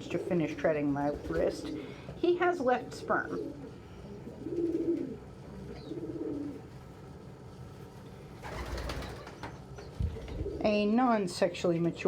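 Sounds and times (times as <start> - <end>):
pigeon cooing: 2.9 - 6.7.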